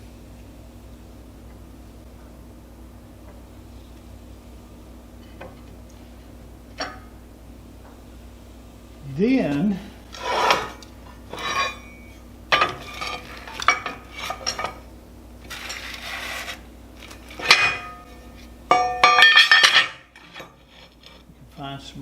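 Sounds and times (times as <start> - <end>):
metal scraping: 10.0 - 14.8, 15.4 - 21.3
scrap metal clanking: 10.1 - 21.4.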